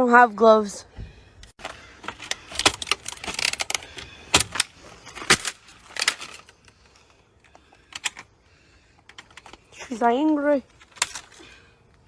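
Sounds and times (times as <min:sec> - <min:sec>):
sharp clicks and clattering knocks: 0:01.5 - 0:06.5.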